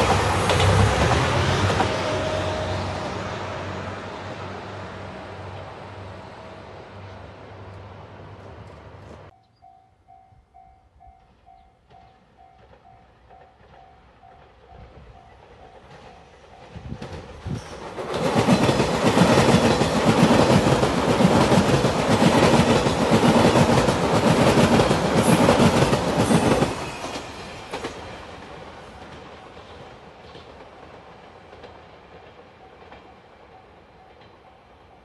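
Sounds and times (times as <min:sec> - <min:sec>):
train wheels clicking over rail joints: 0:00.0 - 0:02.0, 0:15.5 - 0:33.2.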